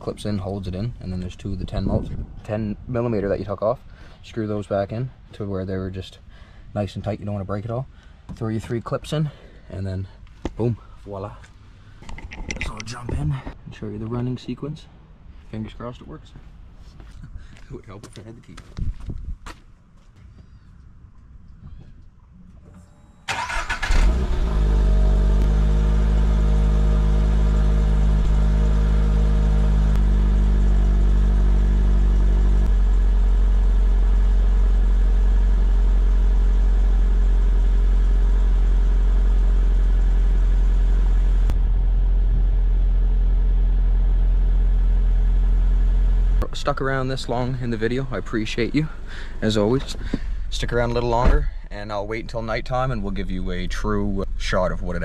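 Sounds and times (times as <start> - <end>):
car engine starting and idling: 22.5 - 55.0.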